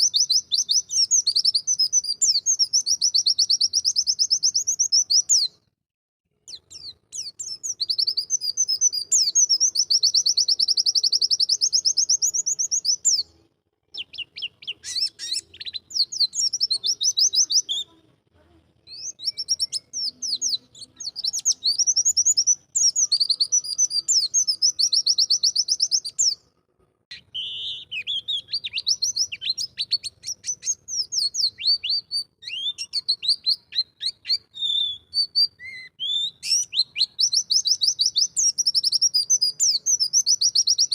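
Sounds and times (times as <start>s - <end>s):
bird twittering: 6.5s - 13.3s, 13.9s - 17.9s, 18.9s - 26.4s, 27.1s - 40.9s.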